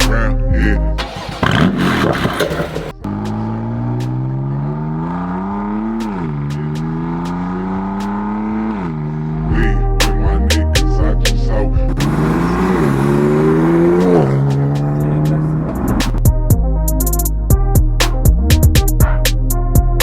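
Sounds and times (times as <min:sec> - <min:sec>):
car engine accelerating hard: 0:01.0 - 0:10.0, 0:11.5 - 0:16.2.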